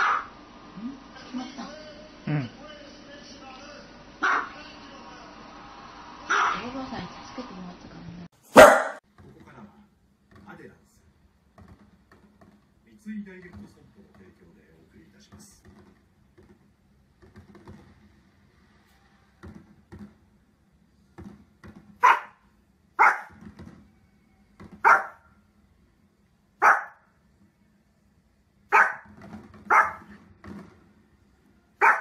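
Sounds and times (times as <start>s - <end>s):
small dog barking: 0.0s - 0.3s, 4.2s - 4.6s, 6.3s - 6.6s, 8.5s - 9.0s, 22.0s - 22.4s, 23.0s - 23.4s, 24.8s - 25.3s, 26.6s - 27.0s, 28.7s - 29.1s, 29.7s - 30.1s, 31.8s - 32.0s.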